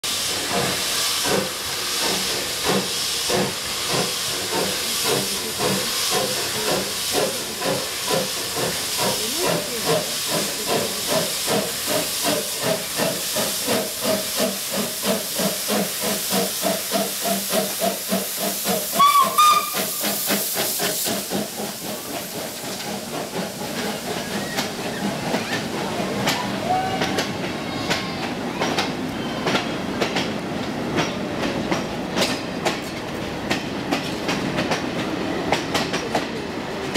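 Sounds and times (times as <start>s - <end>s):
steam hissing: 0.0s - 27.6s
steam locomotive chuffing: 0.0s - 36.9s
train whistle blast: 18.9s - 20.0s.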